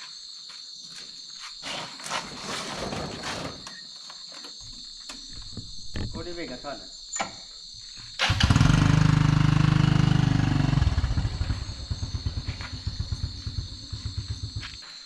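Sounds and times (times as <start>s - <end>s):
insects chirping: 0.0s - 15.0s
motorbike engine: 8.2s - 14.8s.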